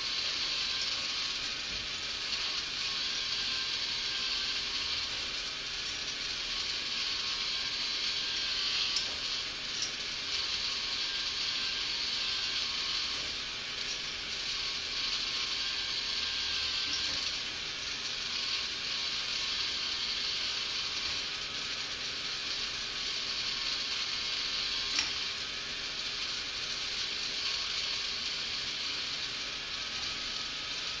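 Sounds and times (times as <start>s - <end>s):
toy motor whirring: 0.0s - 31.0s.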